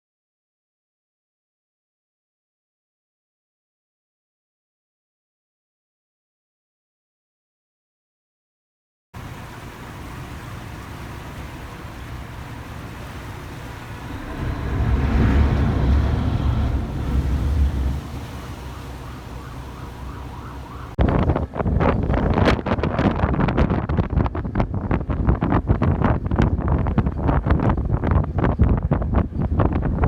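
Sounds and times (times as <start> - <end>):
low vehicle rumble: 9.2 - 30.0
wind buffeting microphone: 13.5 - 30.0
siren wailing faintly: 14.0 - 21.0.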